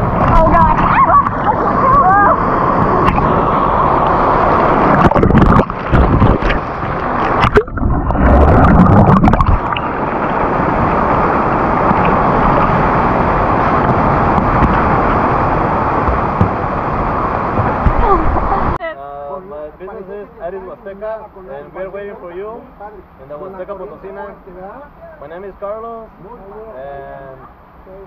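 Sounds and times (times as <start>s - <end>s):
water rushing: 0.0s - 18.9s.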